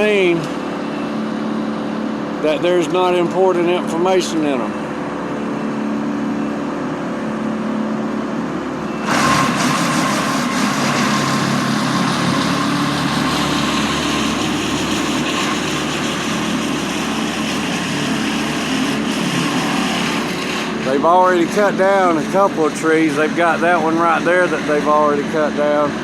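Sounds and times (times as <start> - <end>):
machinery engines running: 0.0 - 26.0
loud hissing machine noise: 9.0 - 26.0.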